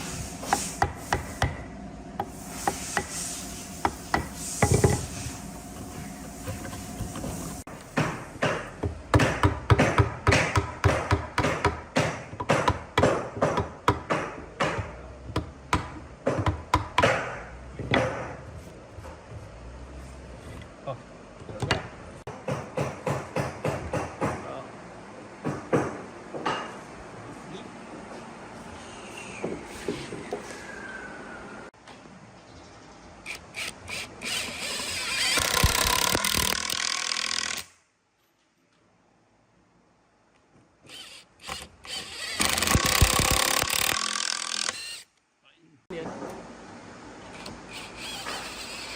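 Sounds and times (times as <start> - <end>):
power tool cutting wood: 33.3 - 37.7, 40.9 - 45.1, 47.7 - 48.9.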